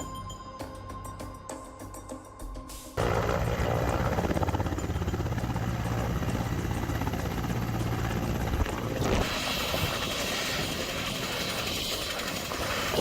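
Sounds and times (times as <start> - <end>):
helicopter engine and rotor: 3.0 - 13.0.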